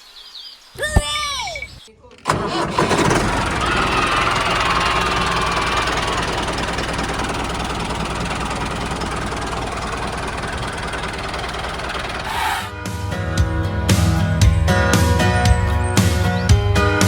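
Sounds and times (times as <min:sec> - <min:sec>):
small tractor engine idling: 0:02.2 - 0:12.7.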